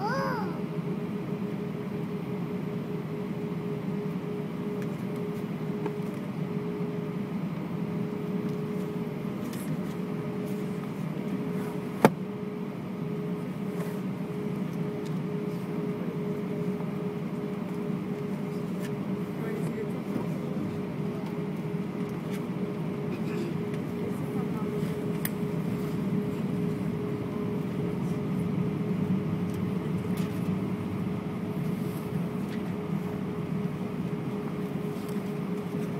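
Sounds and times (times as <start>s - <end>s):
airliner cabin hum: 0.0s - 35.9s.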